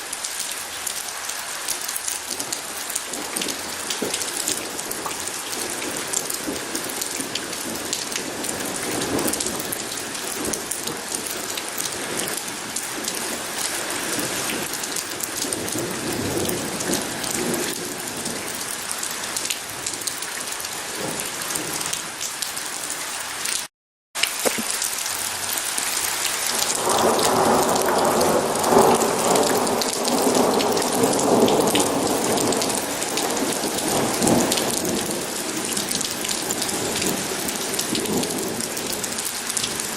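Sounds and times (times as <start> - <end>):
heavy rain falling: 0.0 - 39.9
rumble of thunder: 26.6 - 39.8.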